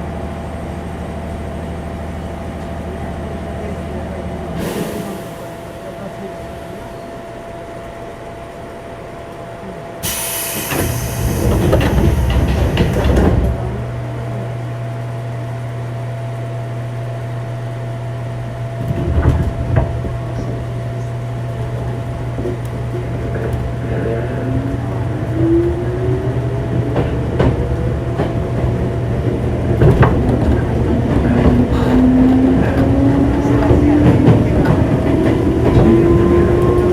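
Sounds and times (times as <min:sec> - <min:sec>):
train low hum: 0:00.0 - 0:36.9
loud hiss: 0:10.0 - 0:13.0.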